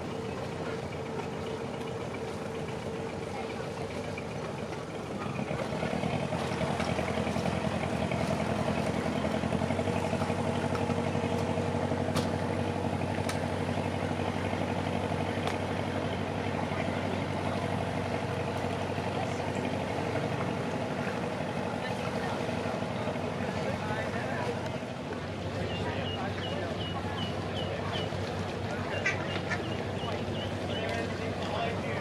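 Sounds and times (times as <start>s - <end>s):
boat engine running: 0.0s - 32.0s.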